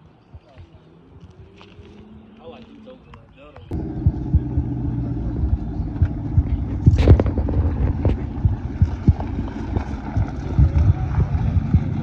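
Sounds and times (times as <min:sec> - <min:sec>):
engine exhaust rumbling near idle: 0:03.7 - 0:12.0.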